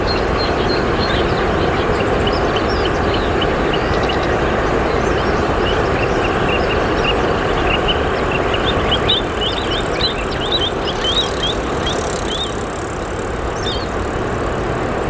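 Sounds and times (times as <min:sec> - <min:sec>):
river water rushing: 0:00.0 - 0:12.9
small bird chirping: 0:00.0 - 0:14.0.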